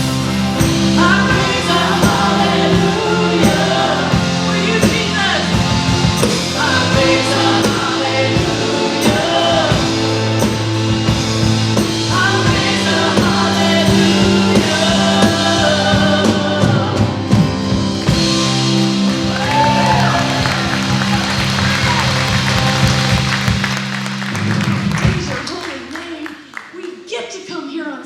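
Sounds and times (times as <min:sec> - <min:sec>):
group of singers: 0:00.0 - 0:23.8
worship band with drums: 0:00.0 - 0:26.8.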